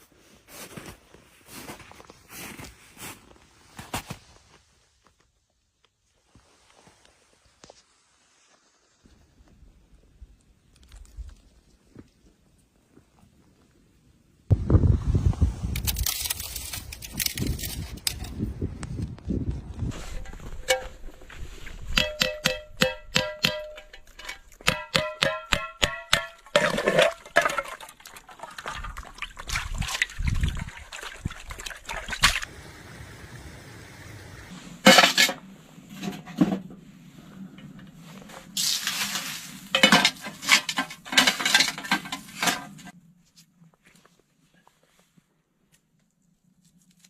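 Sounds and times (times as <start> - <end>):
metal cookware clinking: 22.0 - 27.7, 34.9 - 35.4, 39.8 - 42.9
liquid pouring and sloshing: 26.5 - 32.5.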